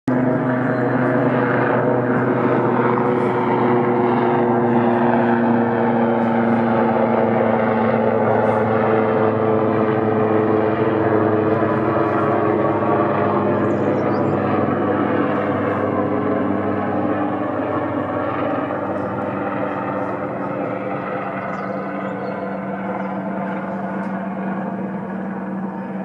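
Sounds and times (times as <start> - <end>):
helicopter flying past: 0.1 - 26.0.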